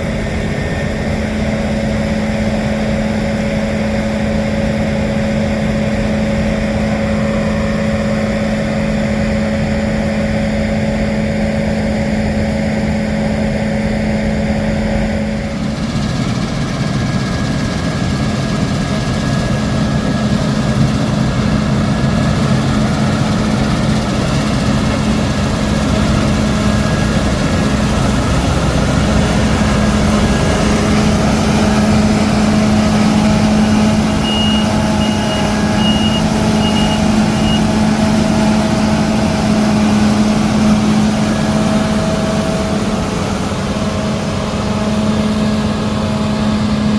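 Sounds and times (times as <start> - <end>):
diesel engines running: 0.0 - 46.9
reversing alarm beeping: 19.4 - 42.3.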